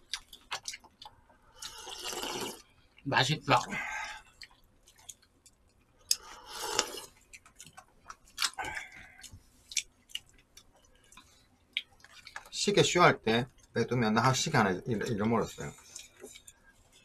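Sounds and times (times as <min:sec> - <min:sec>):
chewing with crisp crunches: 0:00.0 - 0:02.8, 0:04.0 - 0:12.6, 0:15.0 - 0:17.0.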